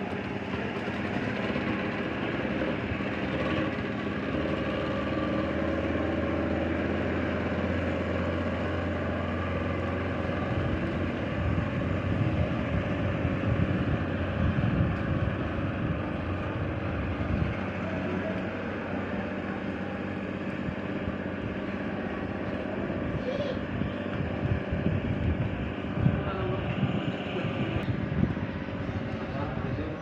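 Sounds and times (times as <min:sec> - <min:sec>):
speedboat engines running: 0:00.0 - 0:30.0
rough low rumble: 0:08.1 - 0:30.0.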